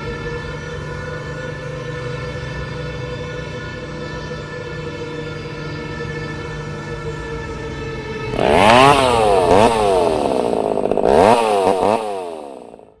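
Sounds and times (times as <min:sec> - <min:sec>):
steady droning tone: 0:00.0 - 0:13.0
chainsaw engine revving: 0:08.3 - 0:13.0.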